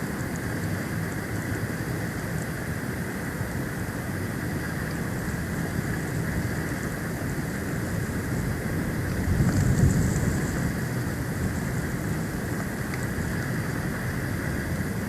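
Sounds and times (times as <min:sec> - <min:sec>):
wind buffeting microphone: 0:04.7 - 0:15.0.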